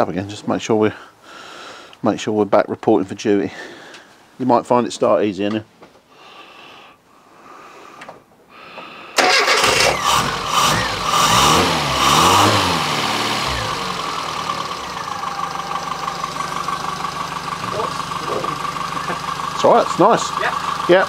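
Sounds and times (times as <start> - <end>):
car engine idling: 9.2 - 21.0
car engine starting and revving: 9.2 - 21.0.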